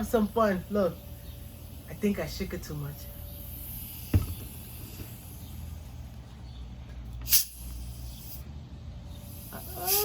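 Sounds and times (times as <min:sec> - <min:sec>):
fizzy bottle opening hiss: 0:03.7 - 0:05.4, 0:07.2 - 0:08.4.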